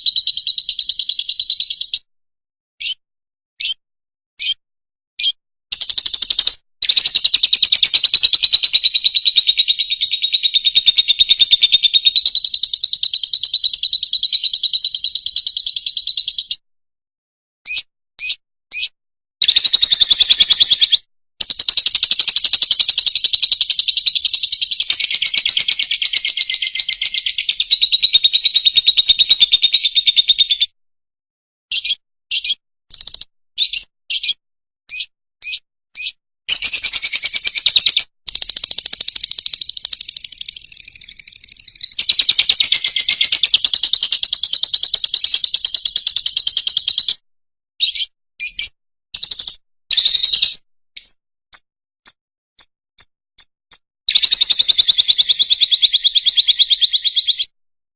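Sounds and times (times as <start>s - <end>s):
short sharp bird chirps: 3.6s - 3.8s, 4.4s - 4.6s, 5.2s - 16.6s, 17.7s - 22.4s, 31.7s - 38.8s, 47.8s - 57.6s
lovebird chattering trills: 5.2s - 16.4s, 17.7s - 30.6s, 34.9s - 47.1s.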